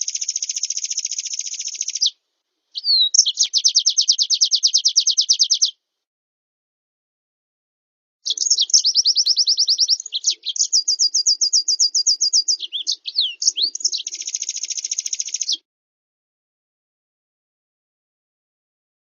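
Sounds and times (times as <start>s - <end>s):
songbird trilling song: 0.0s - 5.8s, 8.3s - 15.6s.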